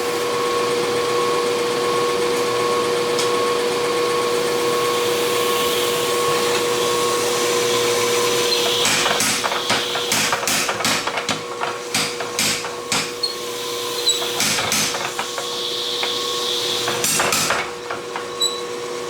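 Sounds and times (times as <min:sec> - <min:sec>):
hammer blows on metal: 0:08.5 - 0:13.4.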